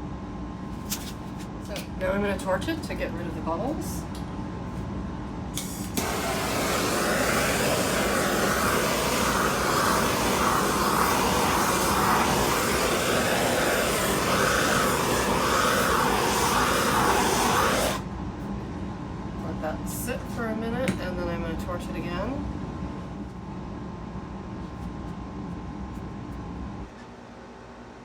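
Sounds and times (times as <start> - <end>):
torch flame hissing: 5.5 - 18.0
torch click: 5.6 - 18.0.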